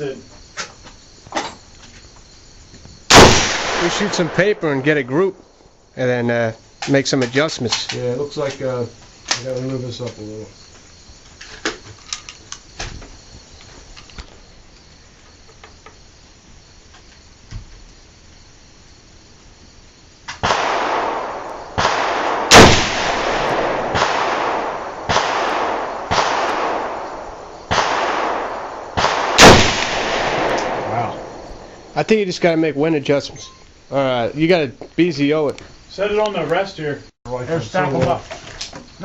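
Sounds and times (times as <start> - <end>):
rifle shots echoing: 3.1 - 5.2, 20.4 - 32.0.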